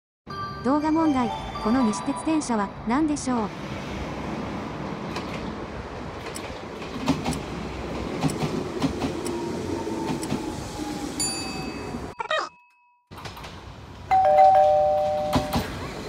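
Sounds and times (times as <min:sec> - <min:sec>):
electric train rumbling past: 0:01.3 - 0:12.2, 0:13.2 - 0:16.0
ringing tone: 0:14.1 - 0:15.6.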